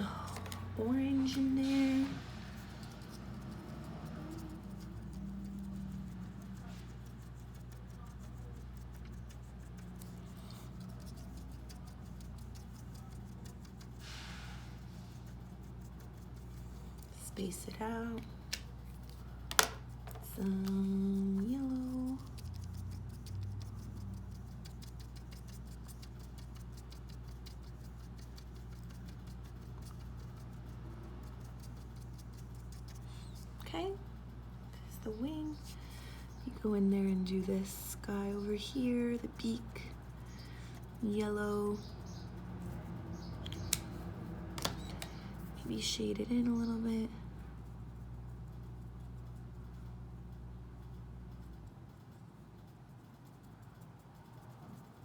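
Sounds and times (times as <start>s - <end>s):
steady low hum: 0.0s - 55.0s
pen tip tapping on paper: 44.6s - 45.1s.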